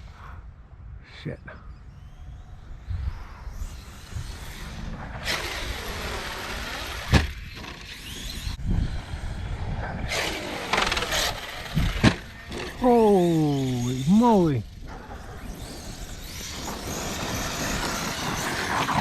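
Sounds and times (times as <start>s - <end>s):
electric motor whining: 10.1s - 19.0s.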